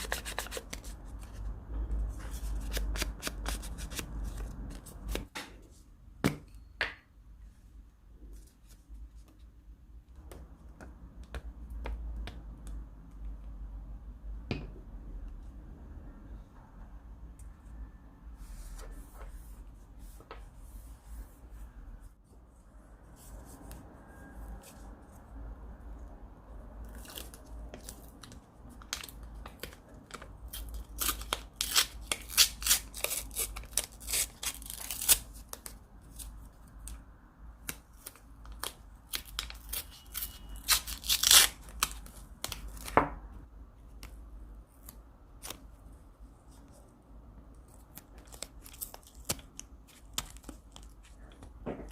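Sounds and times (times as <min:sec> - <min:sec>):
masking tape peeled and torn: 0:26.8 - 0:37.0, 0:37.6 - 0:43.0, 0:47.6 - 0:51.2.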